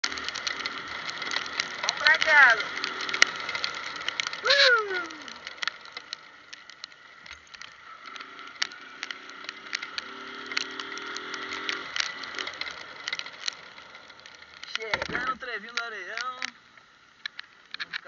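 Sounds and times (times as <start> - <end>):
small motorcycle engine: 0.0 - 15.4
sharp ticks: 0.0 - 18.0.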